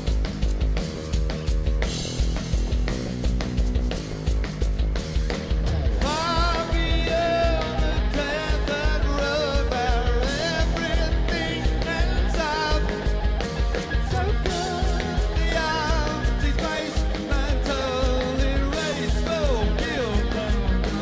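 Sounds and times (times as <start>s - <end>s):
bass and drum pulse: 0.0s - 21.0s
live rock band: 0.0s - 21.0s
lead vocal singing: 5.9s - 21.0s.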